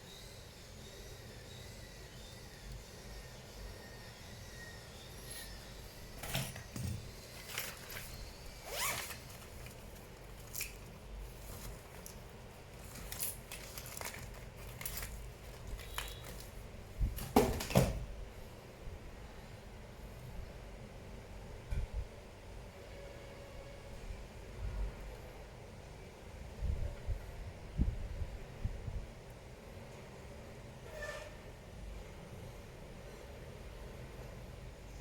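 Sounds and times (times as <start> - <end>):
scrapes and clicks of small tools: 6.2 - 8.3, 8.9 - 16.6.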